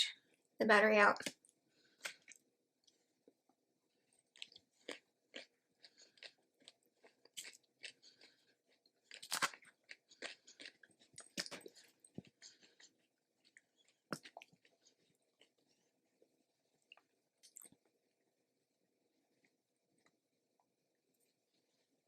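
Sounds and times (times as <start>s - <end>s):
crisp chewing crunches: 1.2s - 3.0s, 4.2s - 15.8s.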